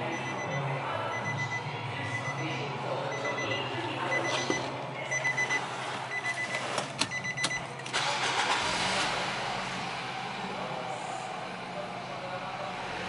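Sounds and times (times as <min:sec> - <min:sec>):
electronic warning chime beeping: 0:00.1 - 0:02.5, 0:03.1 - 0:07.6
car engine starting and idling: 0:05.4 - 0:13.0.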